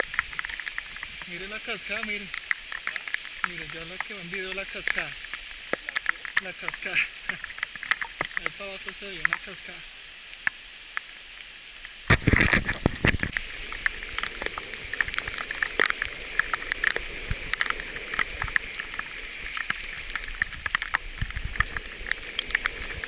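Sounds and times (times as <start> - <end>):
bicycle tyres crunching on gravel: 0.0 - 23.0
wind buffeting microphone: 12.1 - 15.3.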